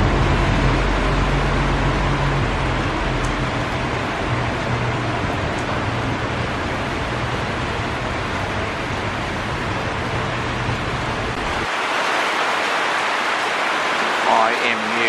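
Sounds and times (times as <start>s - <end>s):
train low hum: 0.0s - 11.7s
rain hissing: 0.0s - 15.0s.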